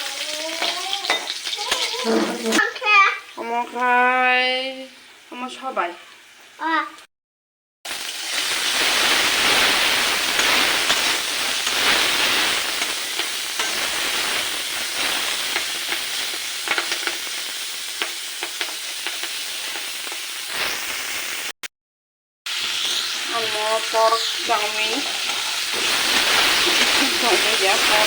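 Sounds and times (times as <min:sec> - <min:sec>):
noodles sizzling in a pan: 0:00.0 - 0:07.0, 0:07.9 - 0:21.6, 0:22.5 - 0:28.0
spatula scraping a pan: 0:00.6 - 0:02.8, 0:09.1 - 0:16.0, 0:24.5 - 0:28.0.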